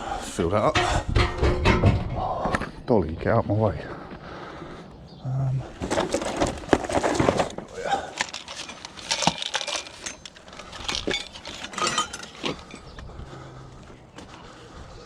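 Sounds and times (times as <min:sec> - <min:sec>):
scrap metal clinking: 0:05.9 - 0:12.9.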